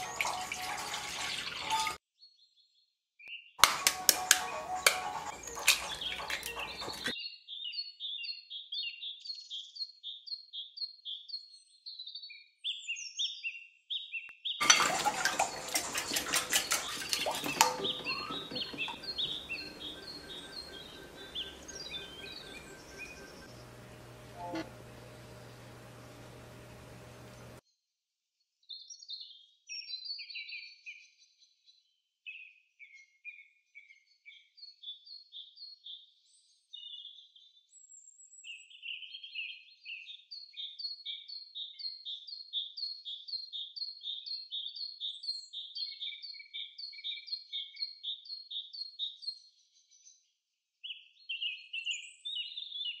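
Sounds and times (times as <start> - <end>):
bird trilling: 15.8 - 25.4
faint hiss and hum: 18.0 - 27.6.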